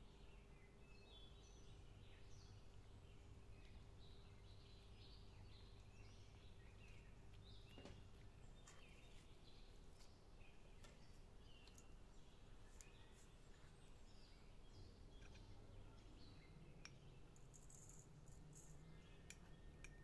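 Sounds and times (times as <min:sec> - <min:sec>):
soft clicks: 0:11.6 - 0:11.9.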